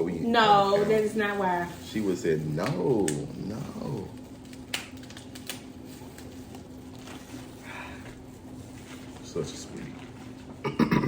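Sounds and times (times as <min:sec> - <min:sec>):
faint steady hum: 0:00.0 - 0:11.0
crab shells cracking: 0:04.0 - 0:05.7.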